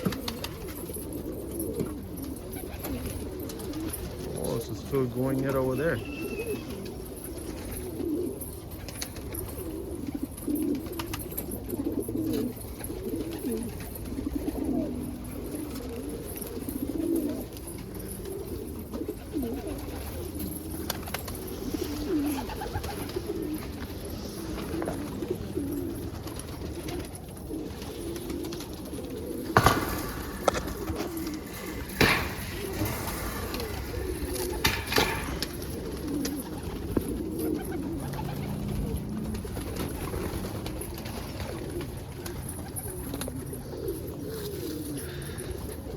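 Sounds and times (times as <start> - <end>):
pigeons cooing: 0.0 - 45.9
sharp knocks and clatters: 29.5 - 35.9.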